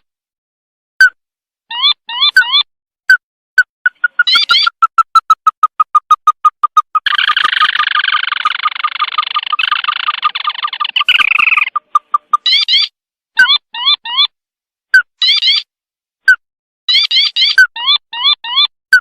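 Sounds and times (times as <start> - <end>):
recorded crake call: 3.6 - 14.4.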